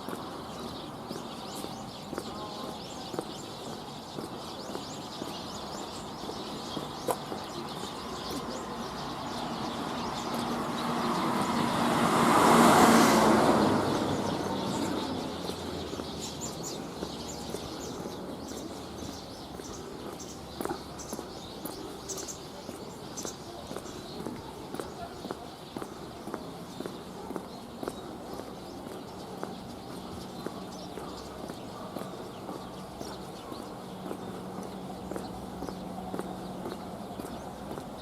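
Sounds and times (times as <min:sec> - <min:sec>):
steady traffic noise: 0:00.0 - 0:38.0
car passing: 0:08.7 - 0:19.7.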